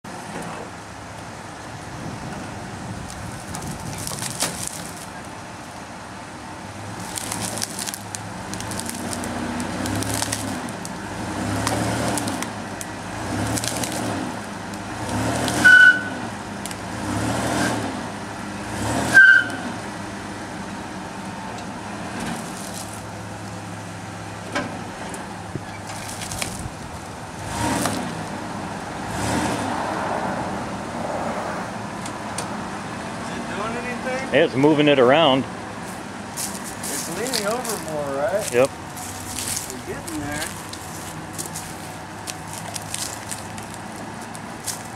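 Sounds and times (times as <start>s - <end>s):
cracks and clicks: 7.0s - 11.0s, 11.6s - 15.6s, 25.8s - 26.7s, 36.4s - 44.9s
engine revving in surges: 8.9s - 19.8s, 27.3s - 31.7s
loud high squeals: 15.6s - 16.2s.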